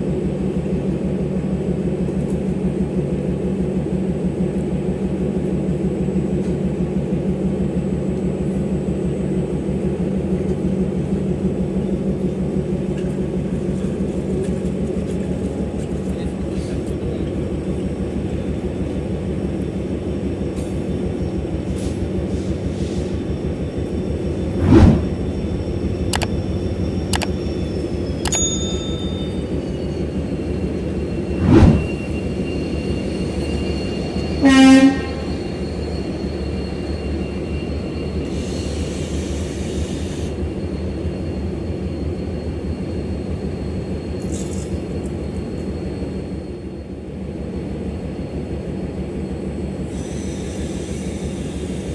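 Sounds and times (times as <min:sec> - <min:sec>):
diesel locomotive engine rumble: 0:00.0 - 0:51.9
train horn blast: 0:34.4 - 0:35.4.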